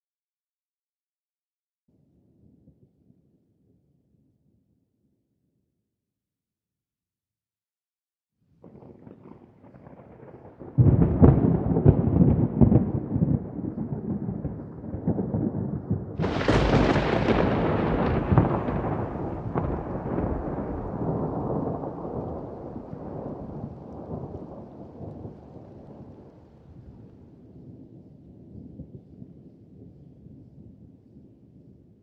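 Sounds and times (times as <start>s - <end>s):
thunder rumbling and cracking: 8.6s - 31.0s
rain: 8.6s - 31.9s.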